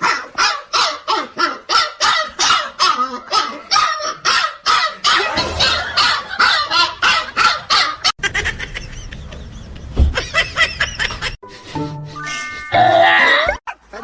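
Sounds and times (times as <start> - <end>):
low rumble: 5.2 - 7.6.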